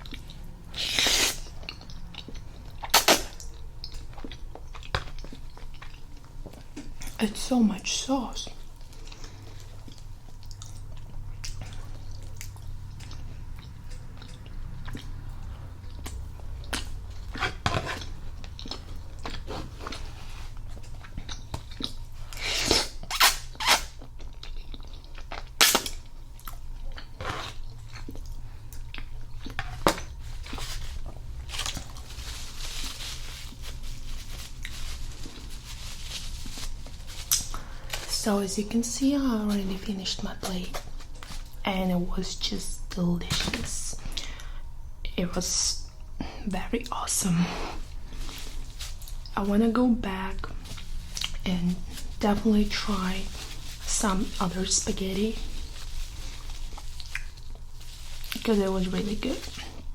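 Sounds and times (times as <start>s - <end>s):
chewing and wet mouth sounds: 0.0s - 7.2s, 8.4s - 32.3s, 47.8s - 59.9s
steady low hum: 0.0s - 59.9s.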